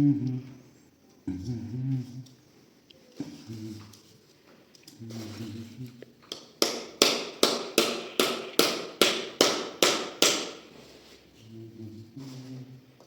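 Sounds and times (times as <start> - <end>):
hammer striking: 6.6 - 10.6.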